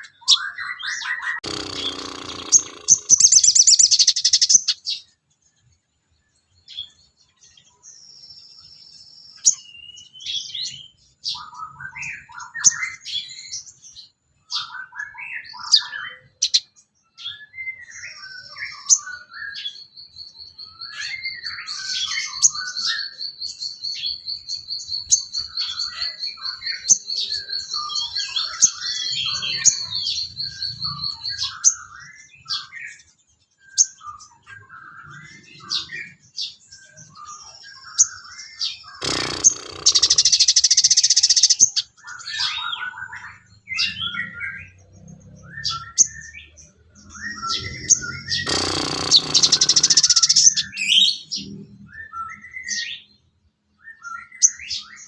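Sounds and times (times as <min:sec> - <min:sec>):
songbird chirps and warbles: 0:00.0 - 0:55.0
buzzing bird trill: 0:01.4 - 0:04.6, 0:39.0 - 0:41.6, 0:47.6 - 0:51.1.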